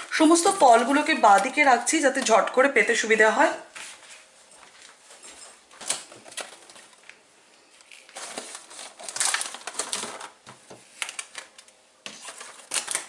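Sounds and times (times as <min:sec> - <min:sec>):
rustling and handling: 0:03.7 - 0:13.0.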